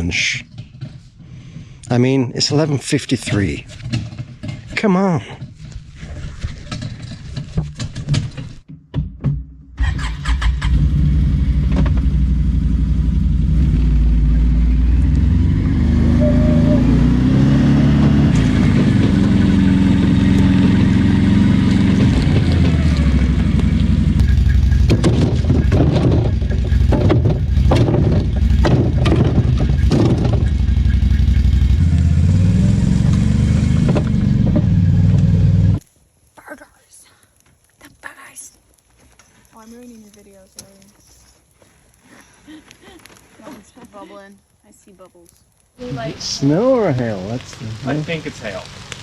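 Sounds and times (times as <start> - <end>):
sharp knocks and rattles: 0.0 - 1.7, 3.4 - 9.8, 21.6 - 31.8
quad engine revving: 9.8 - 35.8.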